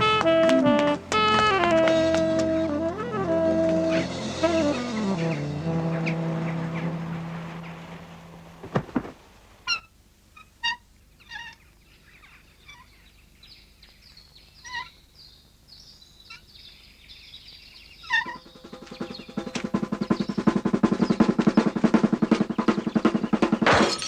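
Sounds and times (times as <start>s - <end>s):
film music: 0.0s - 8.6s, 18.3s - 23.6s
birds calling: 3.8s - 24.0s
high twittering chirps: 16.1s - 23.7s.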